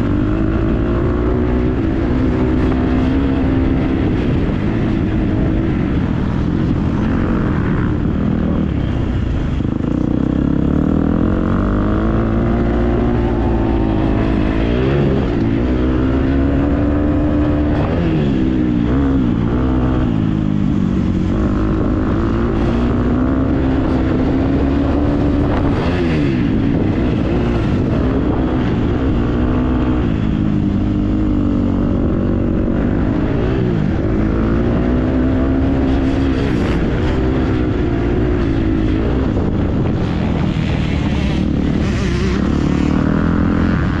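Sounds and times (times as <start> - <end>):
motocross bike engine revving: 0.0 - 44.0.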